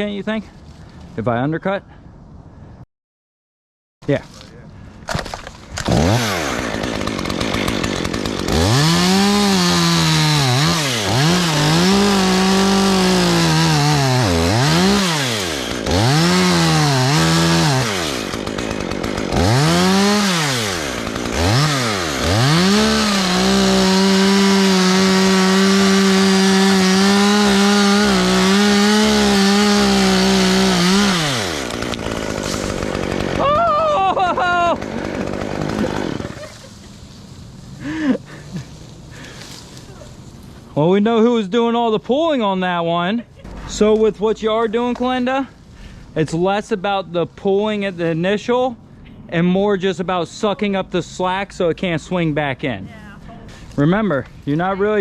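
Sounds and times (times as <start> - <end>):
chainsaw cutting into tree limb: 5.0 - 40.0.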